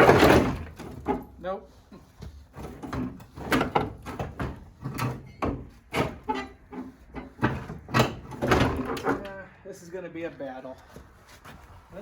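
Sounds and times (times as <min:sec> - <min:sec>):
metal clunks and rattles: 0:00.0 - 0:01.4, 0:02.0 - 0:09.4.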